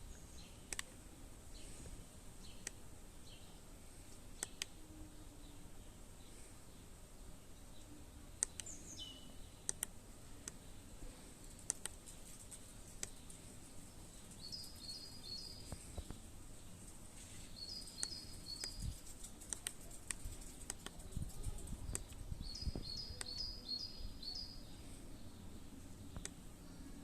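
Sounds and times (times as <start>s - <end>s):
songbird singing: 0.0s - 27.0s
sharp clicks: 0.7s - 1.0s, 2.5s - 2.8s, 4.4s - 4.8s, 8.4s - 8.8s, 9.6s - 10.6s, 11.5s - 13.4s, 17.8s - 23.5s, 26.1s - 26.4s.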